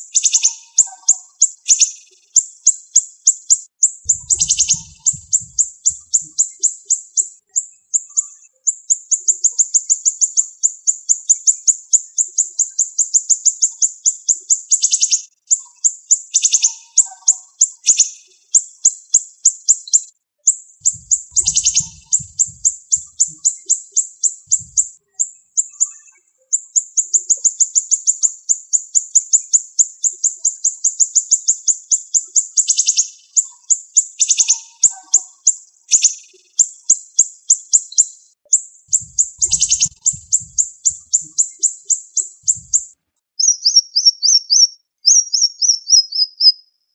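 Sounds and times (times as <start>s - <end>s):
bird singing rapid high notes: 4.1s - 6.6s, 20.8s - 25.0s, 38.9s - 46.6s.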